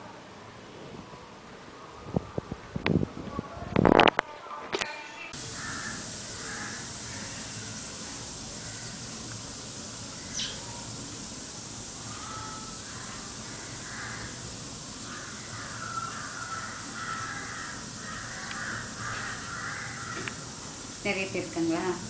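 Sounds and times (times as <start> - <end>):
steady hiss: 5.3 - 22.0
birds calling: 5.4 - 22.0.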